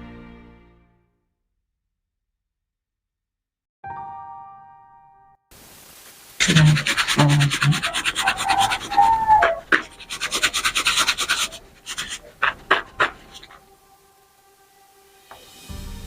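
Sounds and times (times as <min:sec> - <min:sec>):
dough shaken in mesh sieve: 0:06.4 - 0:13.6.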